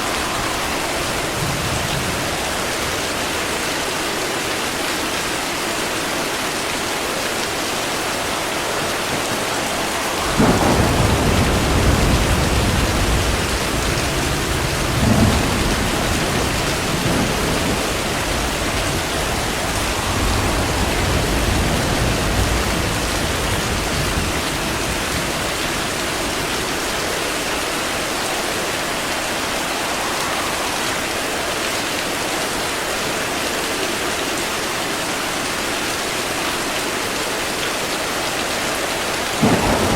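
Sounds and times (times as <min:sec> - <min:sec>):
thunder: 0:00.0 - 0:03.3, 0:09.0 - 0:27.0, 0:39.4 - 0:39.9
heavy rain: 0:00.0 - 0:39.9.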